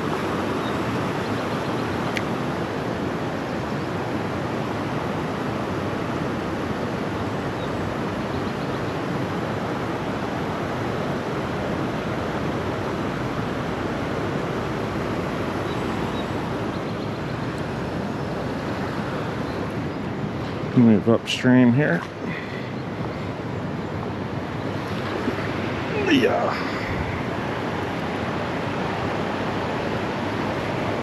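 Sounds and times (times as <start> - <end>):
creek water rushing: 0.0 - 31.0.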